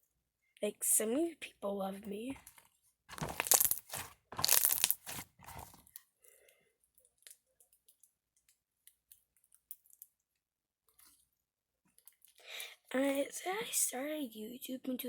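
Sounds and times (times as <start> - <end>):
slime squelching: 3.1 - 5.9
faint small clicks and pops: 5.9 - 11.3.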